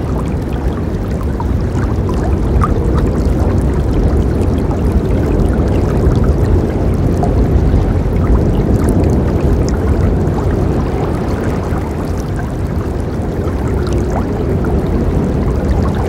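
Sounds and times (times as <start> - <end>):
water splashing and gurgling: 0.0 - 16.0
river water rushing: 7.7 - 16.0.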